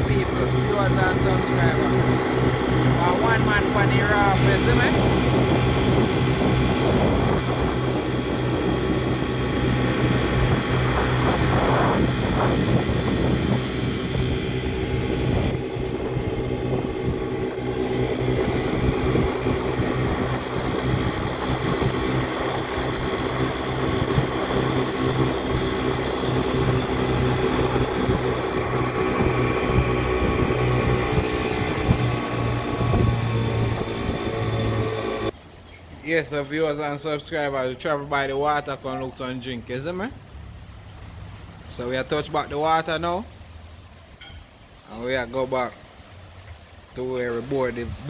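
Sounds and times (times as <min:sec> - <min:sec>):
motorboat engine running: 0:00.0 - 0:35.4
wind and water rushing: 0:00.0 - 0:48.0.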